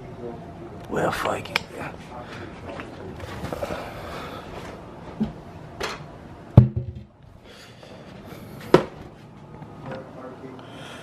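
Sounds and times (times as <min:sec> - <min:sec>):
knocks and bumps in kitchen: 0:06.6 - 0:07.1.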